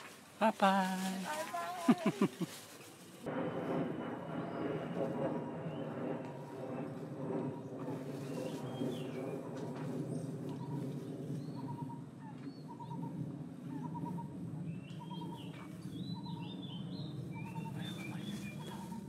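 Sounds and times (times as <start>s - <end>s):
low background rumble: 0.2s - 19.0s
birds chirping: 5.6s - 19.0s.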